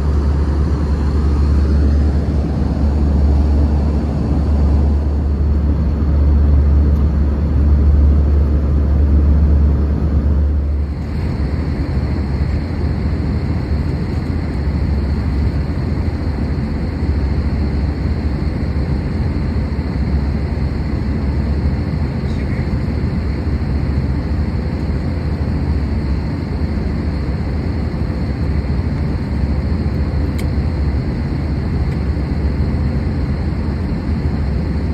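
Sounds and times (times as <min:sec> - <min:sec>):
airliner cabin noise: 0:00.0 - 0:34.9.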